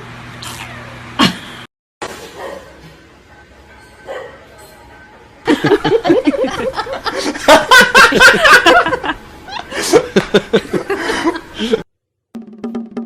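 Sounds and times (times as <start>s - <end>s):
person laughing hard: 5.5s - 11.8s.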